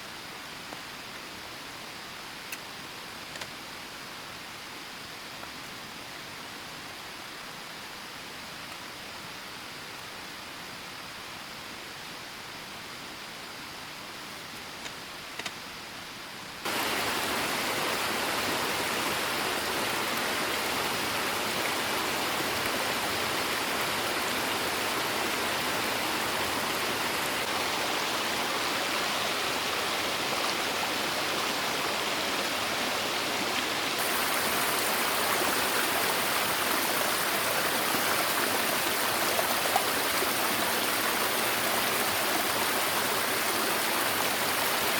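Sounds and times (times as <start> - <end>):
rushing water: 16.6 - 44.9.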